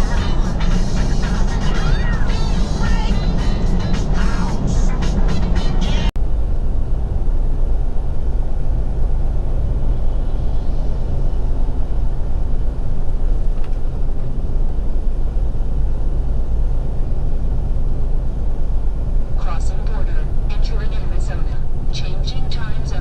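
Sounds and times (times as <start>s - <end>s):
truck engine and road rumble: 0.0s - 23.0s.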